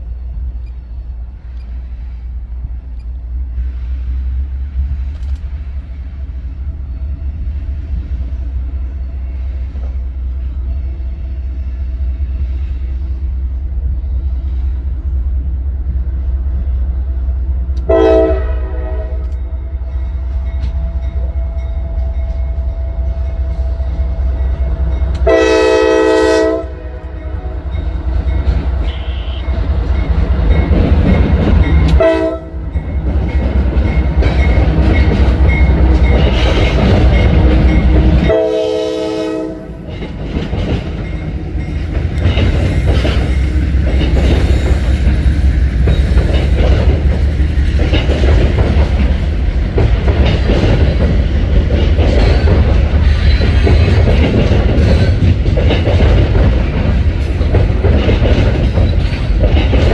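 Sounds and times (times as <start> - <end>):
diesel locomotive rumble: 0.0 - 59.9
train wheels rattling and clacking: 0.0 - 59.9
train horn blasts: 17.8 - 27.9, 28.7 - 29.8, 31.8 - 32.8, 34.9 - 39.9.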